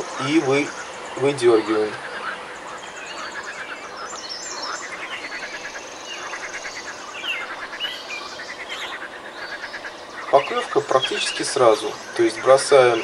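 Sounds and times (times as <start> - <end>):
songbirds singing: 0.0 - 13.0.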